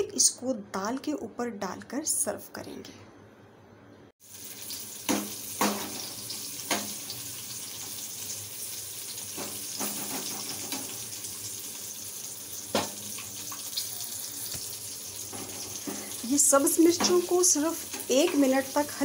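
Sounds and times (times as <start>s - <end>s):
food sizzling in oil: 4.2s - 19.0s.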